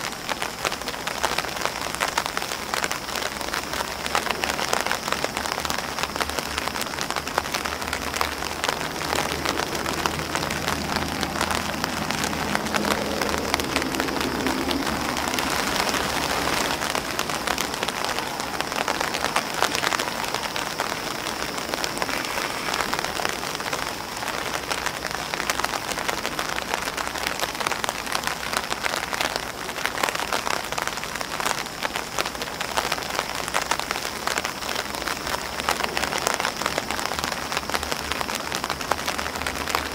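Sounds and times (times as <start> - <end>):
rain on an umbrella: 0.0 - 39.9.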